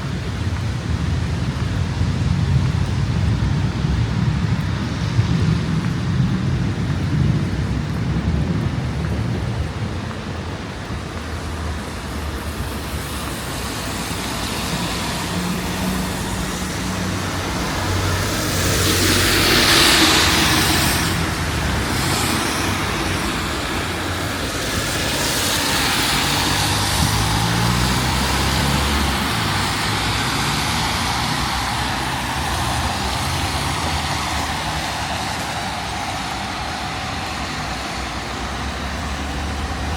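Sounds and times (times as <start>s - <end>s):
vehicles driving past: 0.0s - 39.9s.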